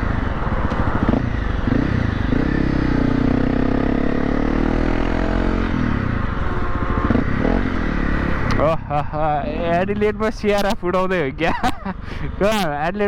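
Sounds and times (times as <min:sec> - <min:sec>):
dirt bike engine running: 0:00.0 - 0:10.1.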